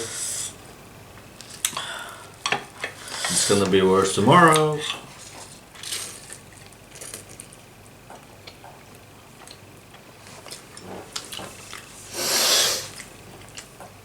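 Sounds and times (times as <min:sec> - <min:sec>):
loud breathy burst: 0:12.1 - 0:13.0.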